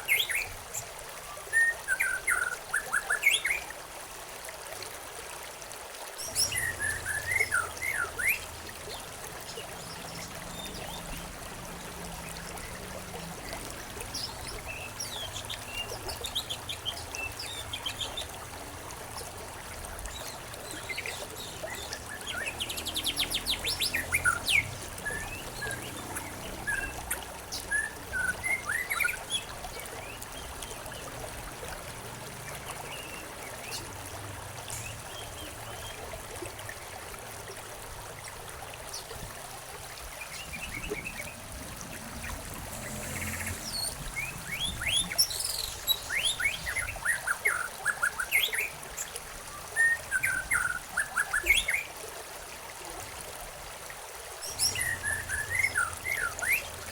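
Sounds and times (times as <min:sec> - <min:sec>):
stream trickling: 0:00.0 - 0:56.9
songbirds chirping and trilling: 0:06.2 - 0:36.8, 0:40.0 - 0:51.9, 0:54.4 - 0:56.9.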